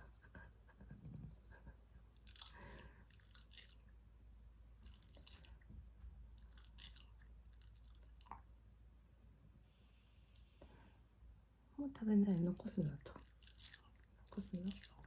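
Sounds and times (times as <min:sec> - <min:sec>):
dog chewing food: 0:02.2 - 0:03.9, 0:04.8 - 0:05.7, 0:06.4 - 0:08.4, 0:12.3 - 0:15.0.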